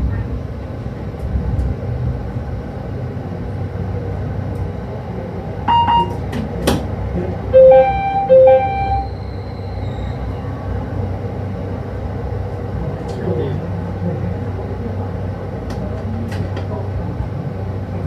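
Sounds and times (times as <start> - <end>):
electric train rumbling: 0.0 - 18.0
short beep: 5.7 - 6.2, 7.6 - 9.2
two-note train horn blasts: 7.6 - 9.0.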